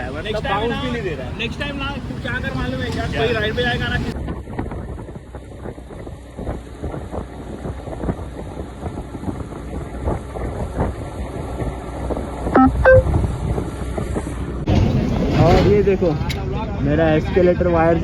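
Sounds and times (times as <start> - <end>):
motorcycle road rumble: 0.0 - 17.1
short pitched beeps: 12.6 - 13.1.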